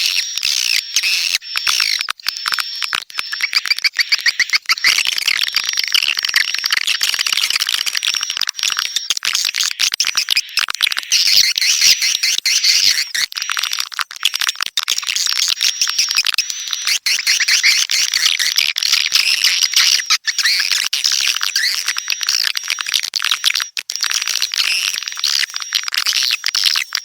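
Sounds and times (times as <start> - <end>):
swiftlets twittering: 0.0 - 13.6, 15.2 - 22.8.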